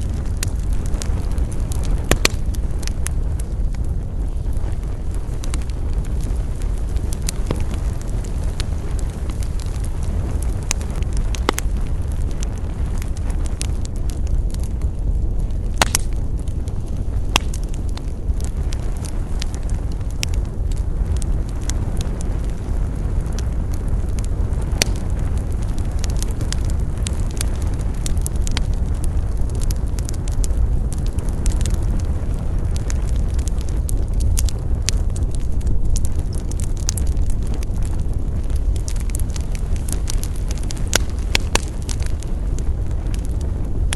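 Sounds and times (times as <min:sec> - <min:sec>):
burning wood crackling and popping: 0:00.0 - 0:43.9
fire deep rumble: 0:00.0 - 0:43.9.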